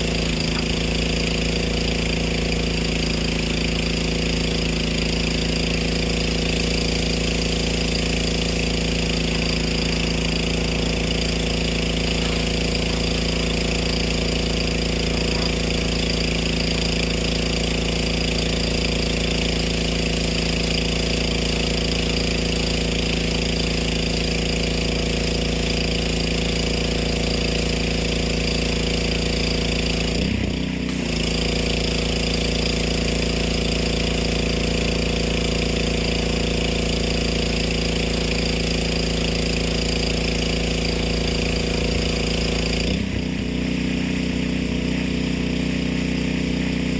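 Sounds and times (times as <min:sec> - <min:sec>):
small engine running: 0:00.0 - 0:46.9
hiss of spray: 0:05.4 - 0:19.3, 0:30.9 - 0:42.9.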